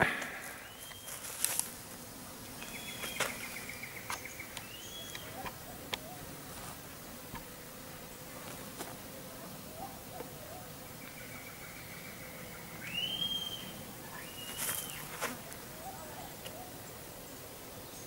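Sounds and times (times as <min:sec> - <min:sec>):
insects buzzing: 0:00.0 - 0:18.0
faint bird chirps: 0:00.4 - 0:01.3, 0:02.6 - 0:06.2, 0:10.5 - 0:15.2.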